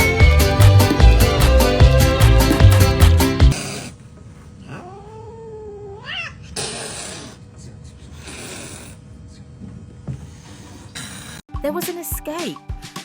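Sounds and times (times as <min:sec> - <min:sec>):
cat yowling: 0:04.6 - 0:07.4.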